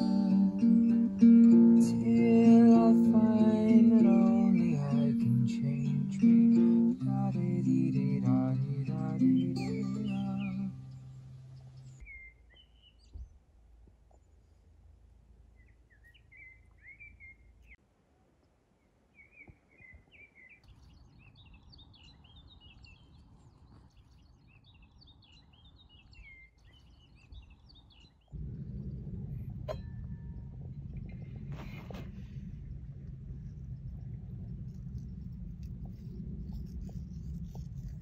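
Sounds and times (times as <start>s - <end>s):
guitar music: 0.0s - 11.6s
small birds chirping: 0.0s - 17.8s, 18.8s - 38.0s.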